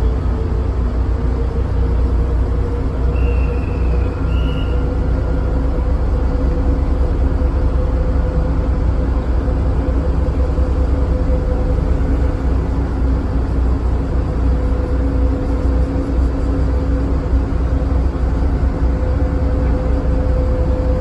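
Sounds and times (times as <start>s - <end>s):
ferry engine drone: 0.0s - 21.0s.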